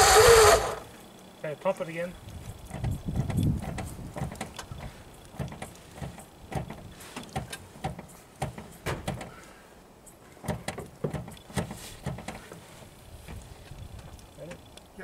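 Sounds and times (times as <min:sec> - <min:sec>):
pedal linkage clunking and creaking: 0:02.7 - 0:09.4.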